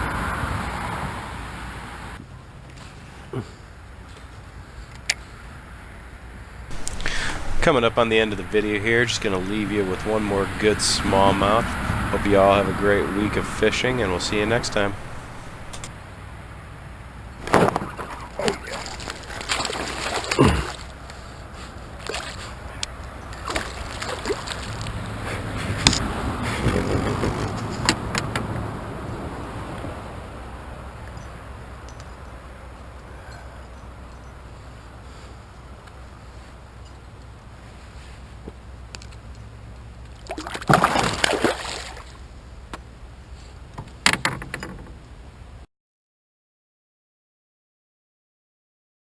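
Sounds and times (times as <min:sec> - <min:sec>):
water splashing around kayak: 0:06.7 - 0:15.9.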